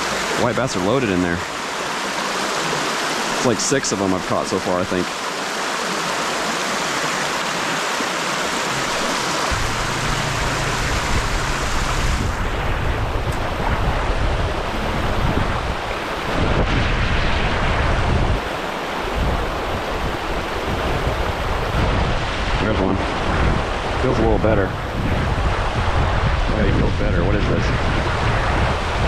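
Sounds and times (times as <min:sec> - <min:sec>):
water rushing over spillway: 0:00.0 - 0:29.0
low rumble: 0:09.5 - 0:18.4.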